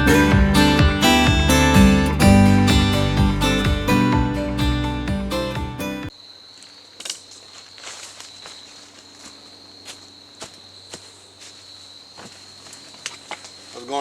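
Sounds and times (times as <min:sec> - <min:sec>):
strummed acoustic guitar: 0:00.0 - 0:06.1.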